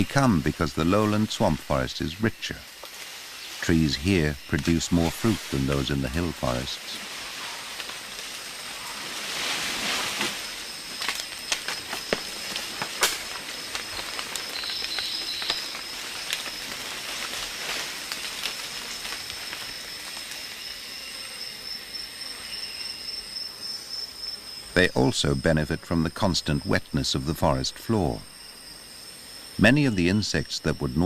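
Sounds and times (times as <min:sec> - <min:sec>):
insects droning: 0:00.0 - 0:31.0
hiss: 0:06.7 - 0:10.8
sharp clicks and cracks: 0:11.0 - 0:20.4.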